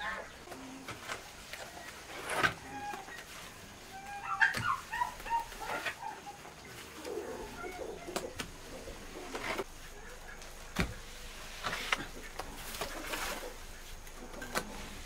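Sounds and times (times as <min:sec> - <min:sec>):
birds chirping and warbling: 0:00.0 - 0:15.0.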